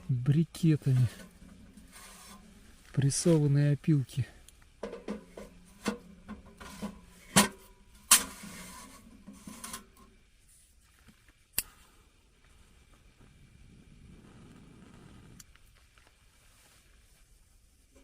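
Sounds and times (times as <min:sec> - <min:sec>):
briquettes rubbing and scraping: 0:00.6 - 0:04.2, 0:04.9 - 0:07.4, 0:08.0 - 0:11.3, 0:14.0 - 0:18.0.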